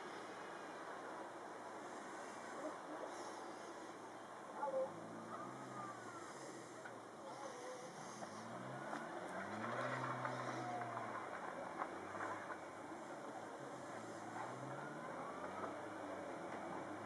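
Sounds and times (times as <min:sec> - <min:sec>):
car engine revving: 0:04.9 - 0:06.8, 0:07.4 - 0:17.0.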